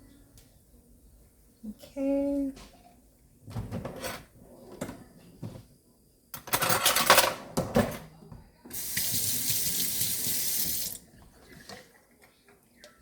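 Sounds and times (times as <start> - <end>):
tap water running: 8.7 - 11.9.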